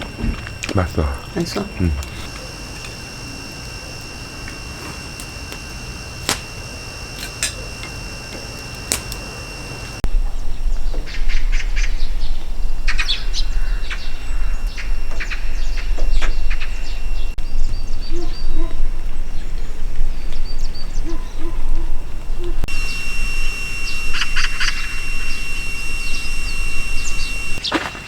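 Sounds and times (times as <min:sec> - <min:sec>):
sharp clicks: 0:00.0 - 0:10.0
high-pitched whine: 0:00.0 - 0:18.2, 0:22.4 - 0:27.6
small birds chirping: 0:22.7 - 0:27.8.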